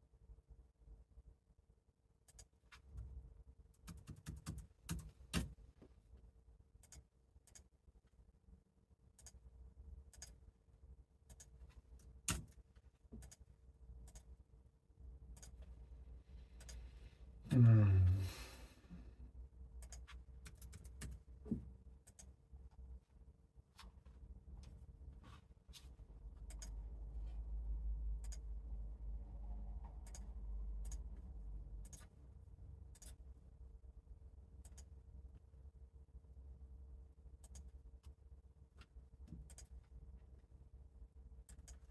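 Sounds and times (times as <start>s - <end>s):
faint low hum: 0.0s - 41.9s.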